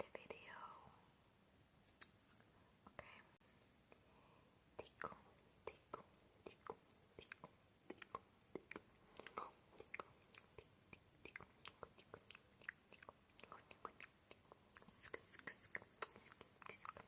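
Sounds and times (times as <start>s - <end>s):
wet tongue and lip clicks: 1.8s - 2.4s, 4.8s - 17.0s.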